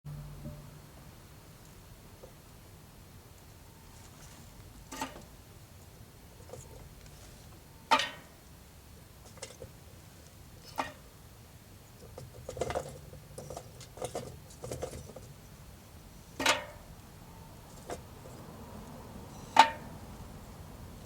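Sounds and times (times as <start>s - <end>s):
small clicks and knocks: 12.0s - 15.4s.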